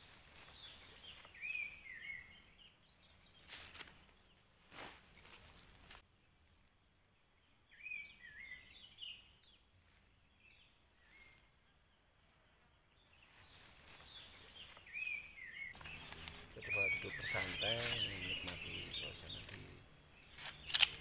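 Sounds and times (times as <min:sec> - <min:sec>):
bag rustling: 0:15.8 - 0:18.9.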